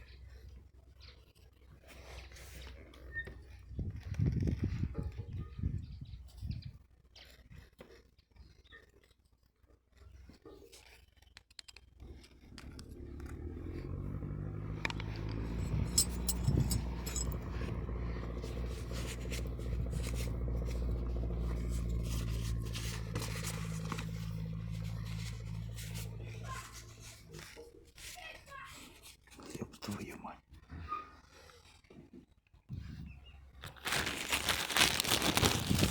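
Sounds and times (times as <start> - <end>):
engine humming: 12.4 - 27.6, 33.5 - 35.9
light metallic clicks and scrapes: 14.7 - 29.6.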